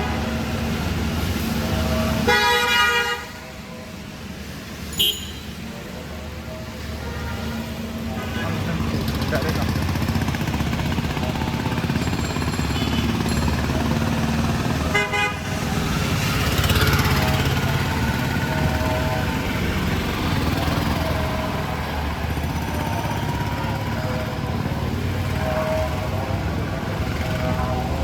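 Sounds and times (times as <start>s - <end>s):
vehicle and motorcycle engines: 0.0s - 28.0s
car horn toots: 2.2s - 3.4s, 4.9s - 5.6s, 14.9s - 15.5s.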